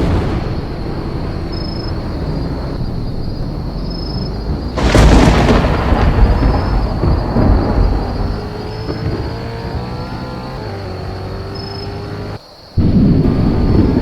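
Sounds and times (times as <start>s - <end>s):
steady low rumble: 0.0s - 8.4s, 12.8s - 14.0s
thunderclap and rumbling thunder: 0.0s - 11.6s, 12.8s - 14.0s.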